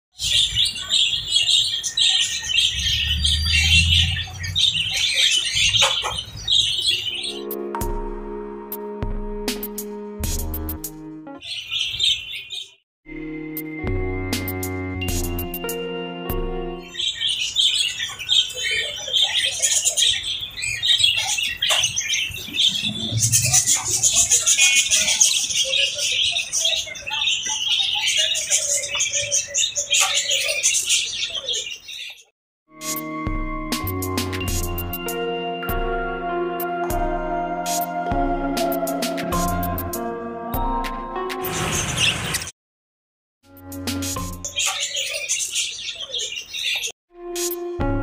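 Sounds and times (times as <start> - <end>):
lovebirds chattering: 0.2 - 7.5, 16.9 - 32.2, 44.5 - 46.9
parrots chattering and squawking: 0.9 - 7.2.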